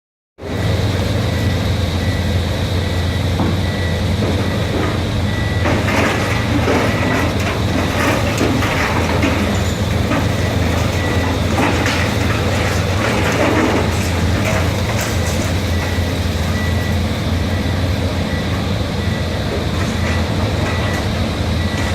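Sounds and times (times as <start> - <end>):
heavy machinery diesel engine: 0.4 - 21.9
debris crunching and cracking: 4.6 - 17.2.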